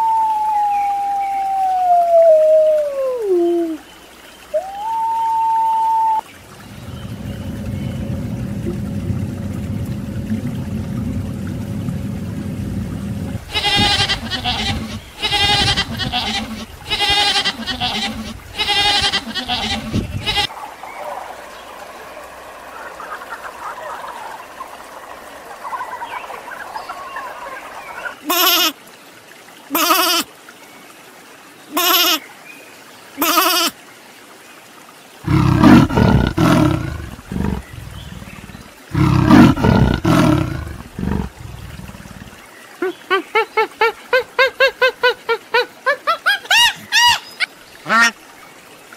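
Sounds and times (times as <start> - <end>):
loud deep animal calls: 4.6 - 28.3, 35.2 - 42.4
repeated pitched animal calls: 13.4 - 20.5.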